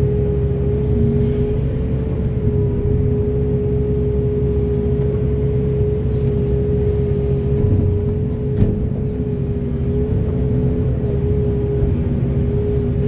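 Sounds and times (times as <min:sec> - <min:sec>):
high whine: 0:00.0 - 0:05.1
diesel excavator engine running: 0:00.0 - 0:13.0.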